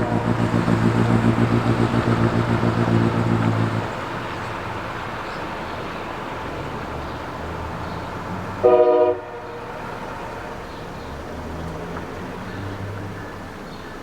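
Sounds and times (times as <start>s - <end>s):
locomotive air horn blast: 0.0s - 0.9s, 8.6s - 9.6s.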